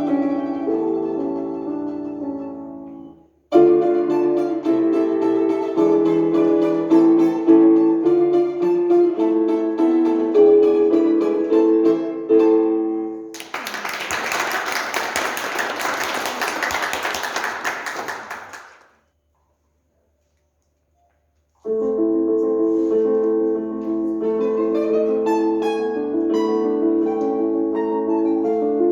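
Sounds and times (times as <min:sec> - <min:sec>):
plucked instrumental melody: 0:00.0 - 0:13.3, 0:23.1 - 0:28.9
audience applause: 0:13.4 - 0:18.9.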